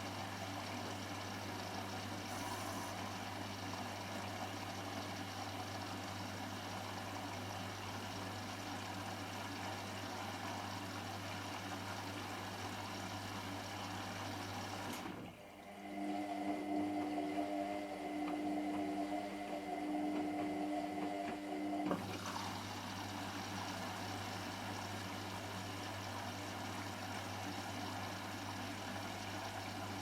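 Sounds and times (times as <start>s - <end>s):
washing machine humming: 0.0s - 30.0s
water flowing through machine: 0.0s - 30.0s
pump whining: 14.9s - 30.0s.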